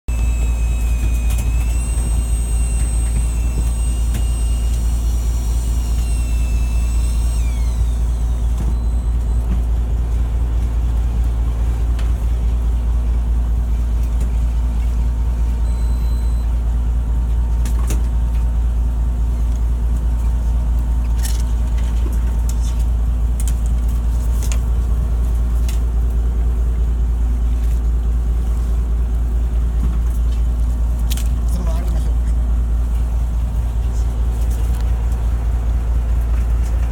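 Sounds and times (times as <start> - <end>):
high thin whine: 0.1 - 9.9
boat engine drone: 0.1 - 36.9.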